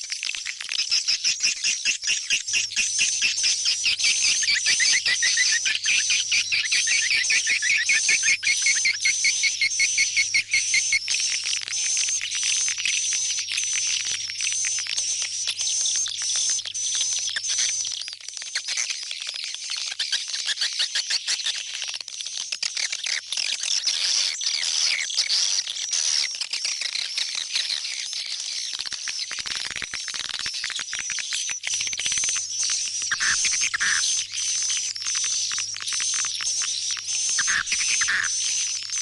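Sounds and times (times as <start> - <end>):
swiftlets twittering: 31.7 - 39.0.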